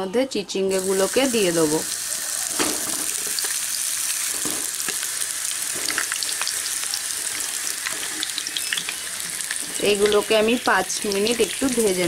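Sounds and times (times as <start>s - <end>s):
food sizzling in oil: 0.7s - 12.0s
oil crackles and pops: 2.4s - 10.4s.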